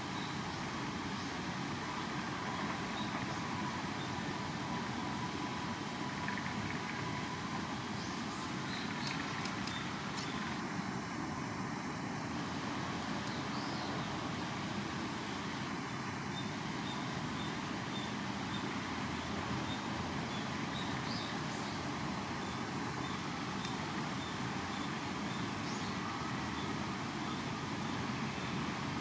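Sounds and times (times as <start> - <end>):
outdoor background noise: 0.0 - 29.0
faint rapid high ticks: 8.8 - 10.6.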